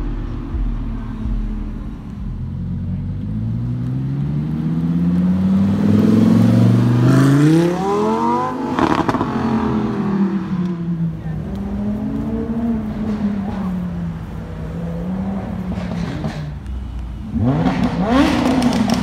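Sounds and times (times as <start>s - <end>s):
exhaust crackle: 0.0s - 19.0s
sports car engine accelerating past: 2.4s - 16.4s.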